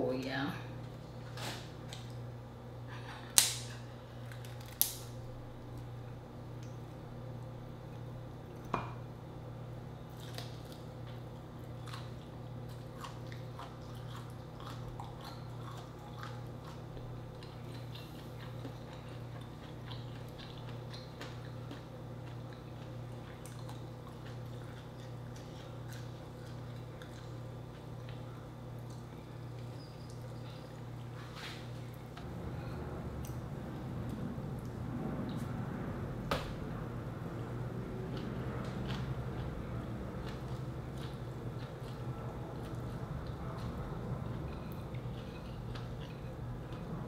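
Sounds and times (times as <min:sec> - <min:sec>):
steady low hum: 0:00.0 - 0:47.0
wet mouth chewing clicks: 0:11.8 - 0:27.3.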